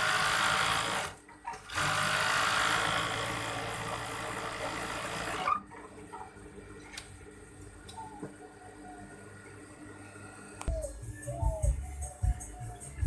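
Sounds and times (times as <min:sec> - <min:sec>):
sewing machine running: 0:00.0 - 0:05.5.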